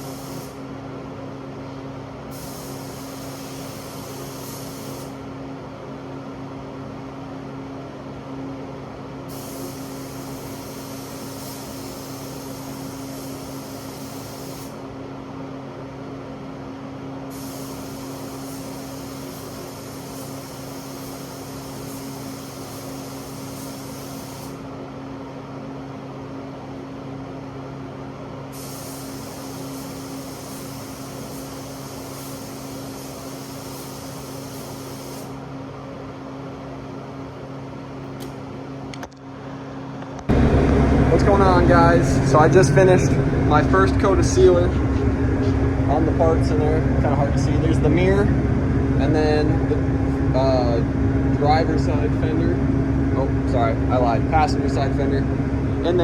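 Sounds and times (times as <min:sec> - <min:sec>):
spray gun hissing: 0:00.0 - 0:00.6, 0:02.3 - 0:05.2, 0:09.3 - 0:14.8, 0:17.3 - 0:24.6, 0:28.5 - 0:35.4
exhaust fan humming: 0:08.8 - 0:15.0, 0:37.7 - 0:56.0.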